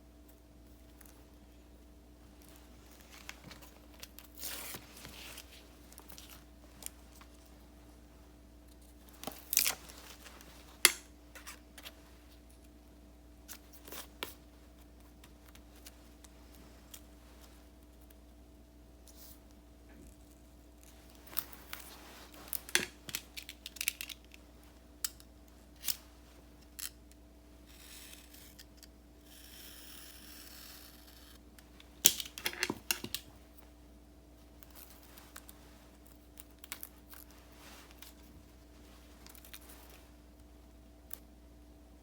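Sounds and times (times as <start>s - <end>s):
paper rustling: 2.4s - 7.6s.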